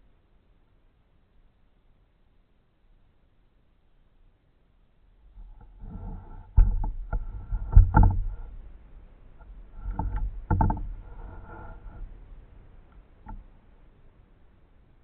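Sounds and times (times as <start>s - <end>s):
heavy thumps: 5.4s - 8.8s, 9.4s - 12.4s
sharp knocks: 5.9s - 8.6s, 9.7s - 12.1s.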